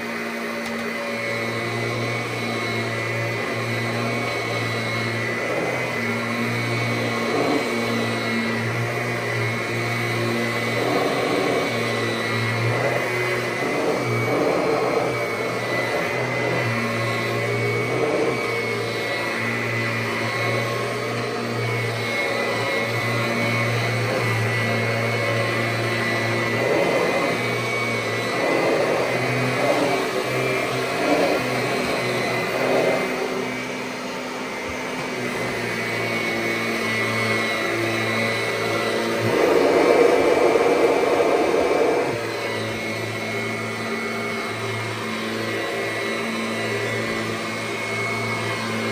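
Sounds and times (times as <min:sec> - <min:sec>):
vacuum cleaner running on carpet: 0:00.0 - 0:48.9.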